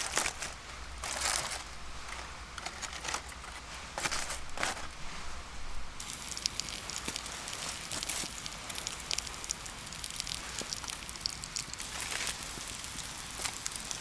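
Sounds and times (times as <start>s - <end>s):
campfire crackling and popping: 6.0s - 14.0s.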